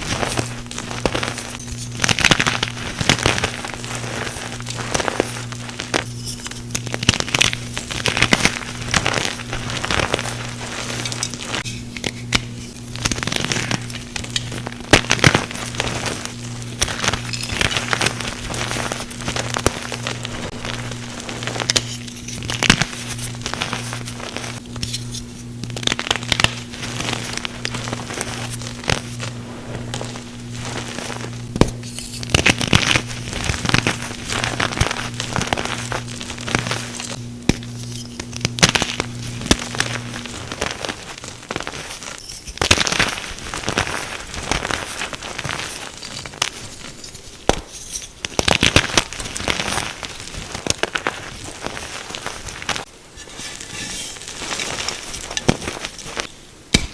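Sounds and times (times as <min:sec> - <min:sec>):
chalk crushing and crackling: 0:00.0 - 0:56.9
steady low hum: 0:00.0 - 0:56.9.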